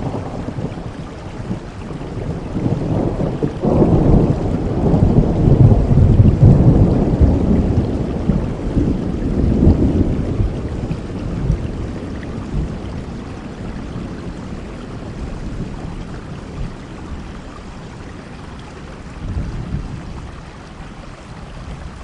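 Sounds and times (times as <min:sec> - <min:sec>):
thunder rolling: 0:00.0 - 0:14.4
steady rainfall: 0:00.0 - 0:22.0.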